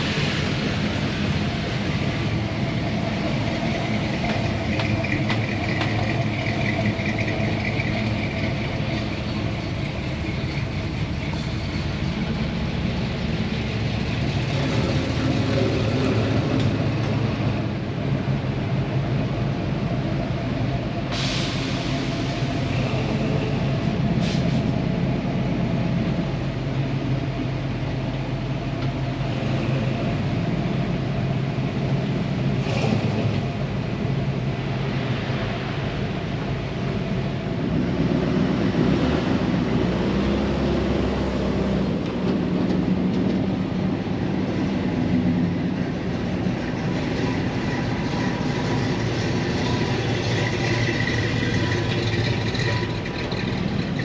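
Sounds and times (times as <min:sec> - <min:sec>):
truck engine running: 0:00.0 - 0:29.4, 0:40.8 - 0:54.0.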